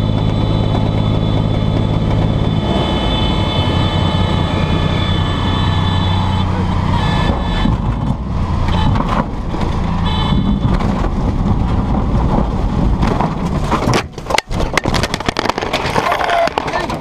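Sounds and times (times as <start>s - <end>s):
plane rumbling over rough ground: 0.0s - 17.0s
high tone: 2.3s - 7.7s.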